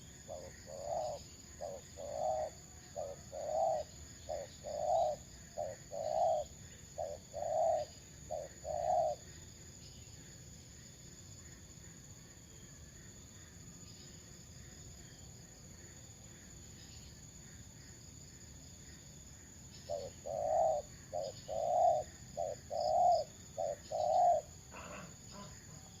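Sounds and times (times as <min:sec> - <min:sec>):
dove cooing: 0:00.0 - 0:09.2, 0:19.9 - 0:26.0
faint high chirping: 0:11.4 - 0:26.0.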